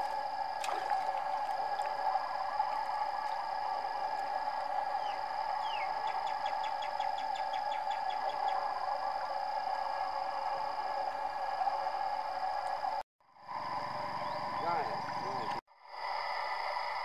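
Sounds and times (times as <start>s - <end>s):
steady droning hum: 0.0s - 17.0s
bird whistles and trill: 5.0s - 8.1s.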